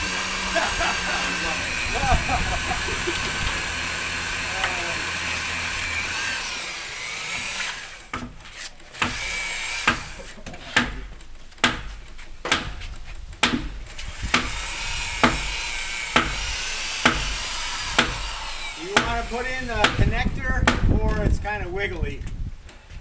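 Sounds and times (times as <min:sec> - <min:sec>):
power drill whining: 0:00.0 - 0:10.5, 0:13.9 - 0:20.4
hammer striking wooden pegs: 0:10.8 - 0:12.8, 0:15.2 - 0:15.6, 0:16.2 - 0:16.4, 0:18.0 - 0:20.9.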